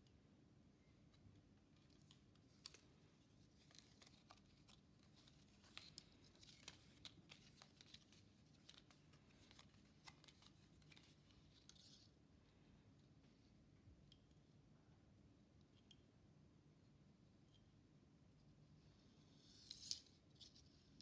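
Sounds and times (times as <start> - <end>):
faint small clicks and rustles: 0.8 - 14.6, 15.5 - 16.2, 17.4 - 21.0.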